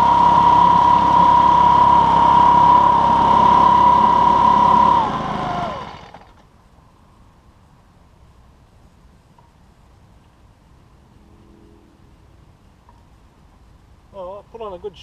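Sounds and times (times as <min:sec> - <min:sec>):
pulse jet engine whining: 0:00.0 - 0:06.4.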